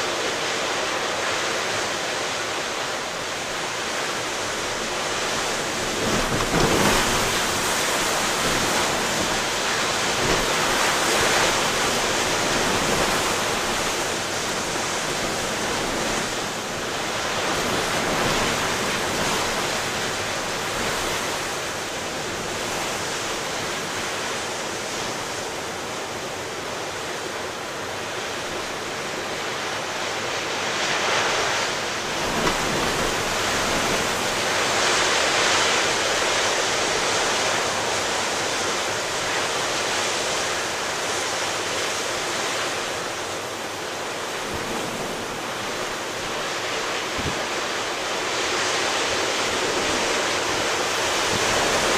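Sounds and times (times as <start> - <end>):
strong wind: 0.0 - 51.9
waves breaking: 0.0 - 51.9.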